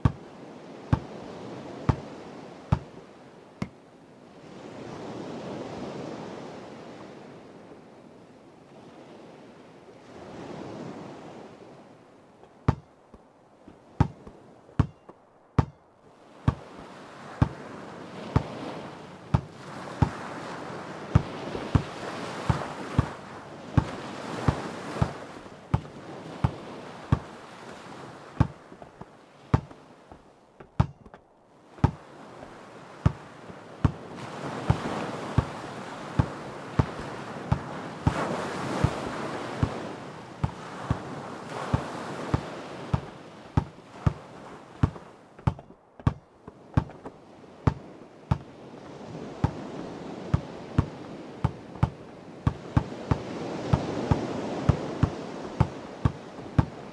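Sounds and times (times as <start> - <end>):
basketball bouncing on hard ground: 0.0 - 0.2, 0.9 - 1.2, 1.9 - 2.1, 2.7 - 3.0, 12.7 - 12.9, 14.0 - 15.8, 16.5 - 16.8, 17.4 - 17.7, 18.3 - 20.3, 21.2 - 23.2, 23.8 - 27.3, 28.4 - 31.2, 31.8 - 32.0, 33.0 - 33.2, 33.8 - 34.0, 34.7 - 35.6, 36.2 - 38.2, 39.6 - 41.1, 41.7 - 44.2, 44.8 - 48.5, 49.4 - 49.6, 50.3 - 56.8
ocean waves washing: 0.0 - 56.9.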